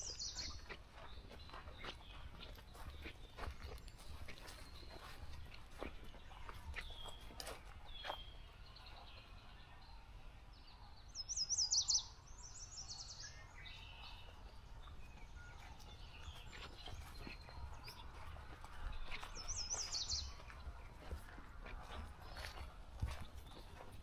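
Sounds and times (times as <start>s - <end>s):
faint bird chirps: 0.0s - 18.3s.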